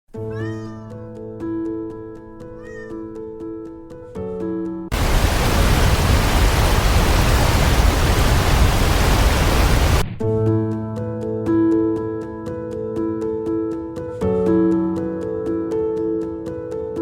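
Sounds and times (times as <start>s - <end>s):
loud static hiss: 4.9s - 10.0s.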